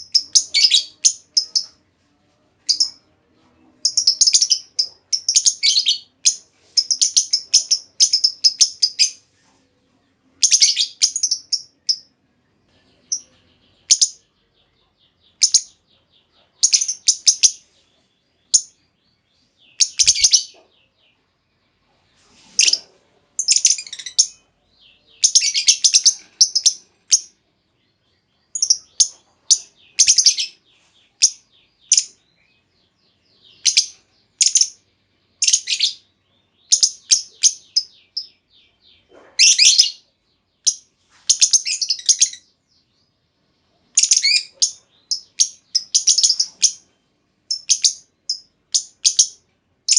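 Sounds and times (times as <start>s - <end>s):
lovebird chattering chirps: 0.0s - 1.8s, 2.6s - 3.0s, 3.8s - 9.2s, 10.4s - 12.1s, 13.1s - 14.2s, 15.3s - 15.8s, 16.6s - 17.8s, 18.5s - 18.8s, 19.6s - 20.9s, 22.5s - 27.3s, 28.5s - 32.6s, 33.5s - 34.8s, 35.4s - 36.0s, 36.7s - 38.4s, 39.0s - 40.0s, 40.6s - 42.5s, 43.9s - 46.8s, 47.5s - 49.9s.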